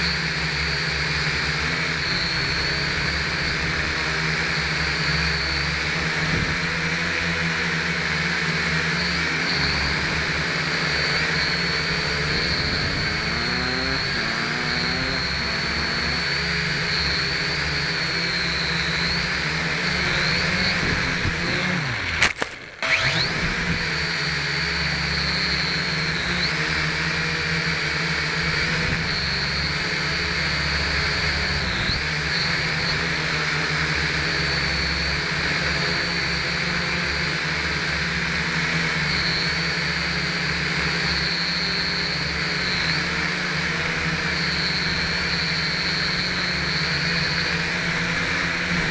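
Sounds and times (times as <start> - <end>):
quadcopter motors whining: 0.0 - 48.9.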